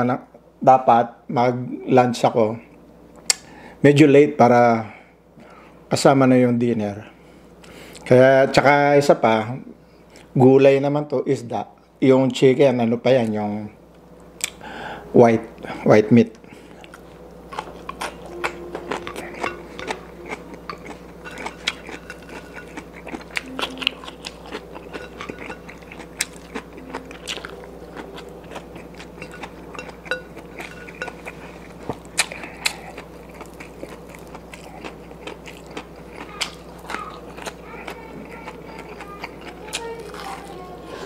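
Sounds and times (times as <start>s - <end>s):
steady low hum: 0.0s - 41.0s
man chewing: 14.0s - 41.0s.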